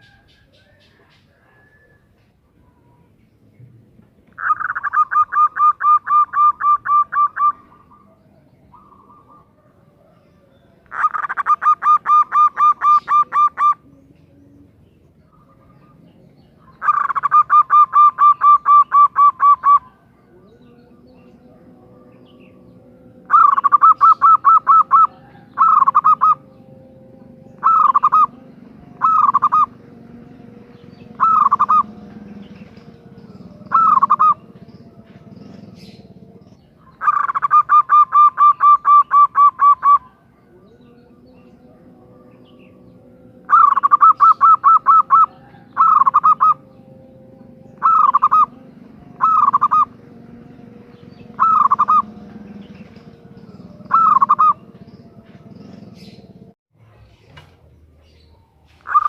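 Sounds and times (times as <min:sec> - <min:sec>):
dove calling: 0:00.0 - 0:56.6, 0:58.0 - 0:59.0
faint steady hum: 0:12.0 - 0:37.1, 0:40.0 - 0:56.6.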